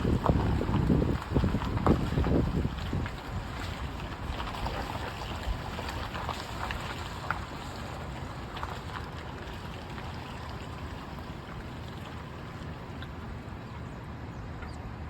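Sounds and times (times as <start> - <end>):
creek water rushing: 0.0 - 14.1
small water splashes: 0.0 - 14.1.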